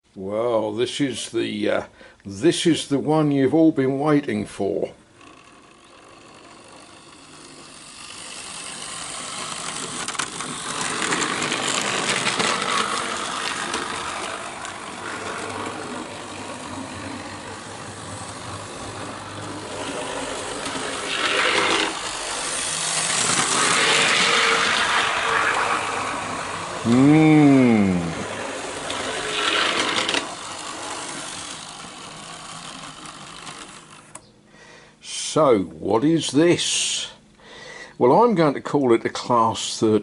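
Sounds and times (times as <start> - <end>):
electric motor whir: 5.2 - 34.2
model train wheels clattering: 5.2 - 34.2.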